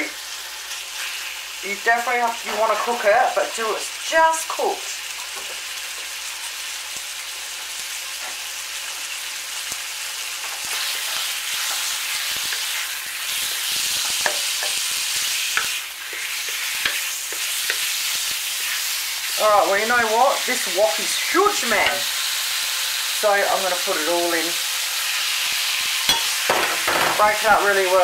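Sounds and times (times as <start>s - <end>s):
chicken sizzling in hot oil: 0.0s - 28.0s
spatula scraping and tapping pan: 13.4s - 18.8s, 26.1s - 27.3s.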